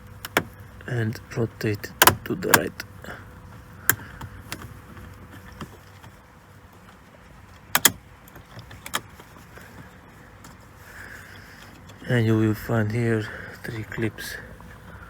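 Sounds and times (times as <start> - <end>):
plastic switch clicks: 0.2 - 0.6, 2.0 - 2.8, 7.7 - 8.0.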